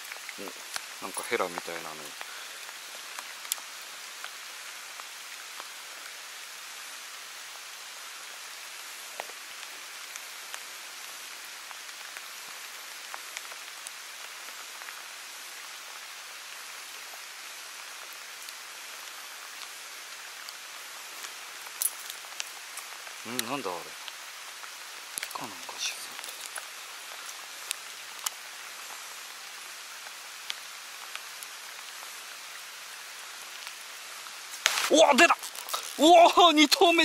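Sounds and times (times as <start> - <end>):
faint raindrop ticks: 0.0 - 6.3, 8.4 - 36.8
steady rain falling: 0.0 - 37.0.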